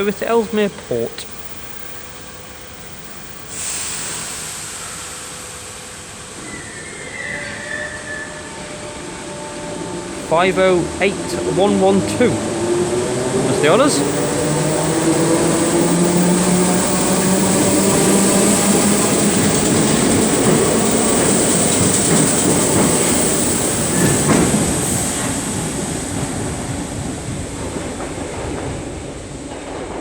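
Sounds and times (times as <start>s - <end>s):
electric train motor whine: 0.0s - 26.4s
train carriages rumbling: 6.2s - 30.0s.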